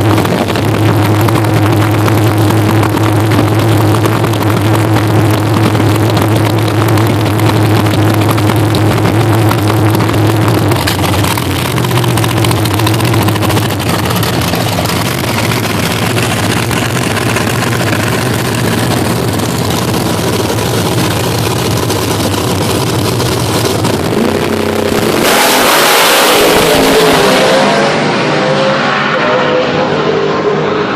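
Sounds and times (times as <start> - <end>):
race car engine revving: 0.0 - 30.9.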